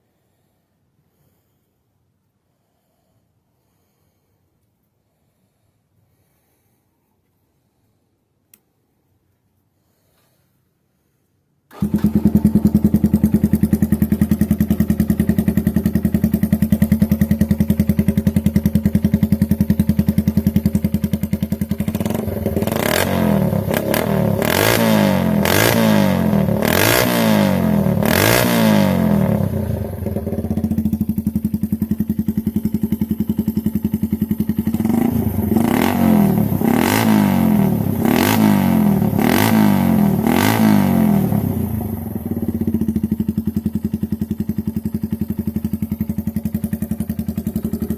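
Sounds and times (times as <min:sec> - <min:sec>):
motorcycle engine revving: 0:11.7 - 0:47.9.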